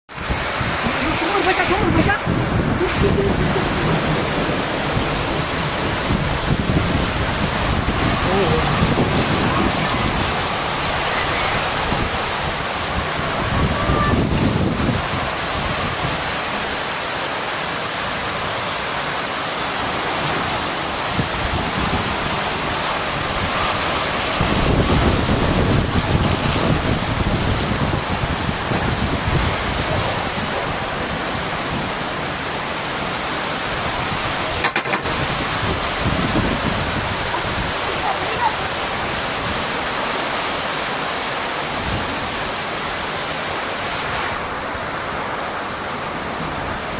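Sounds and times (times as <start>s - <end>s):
heavy rain falling: 0.1s - 46.9s.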